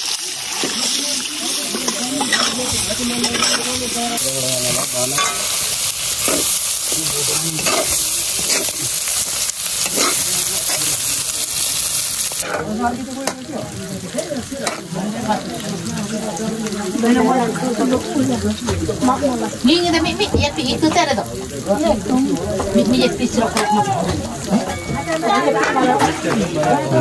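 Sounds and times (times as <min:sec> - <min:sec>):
pork sizzling in a wok: 0:00.0 - 0:27.0
spatula scraping and stirring: 0:01.7 - 0:03.8, 0:06.2 - 0:08.9, 0:09.8 - 0:11.0.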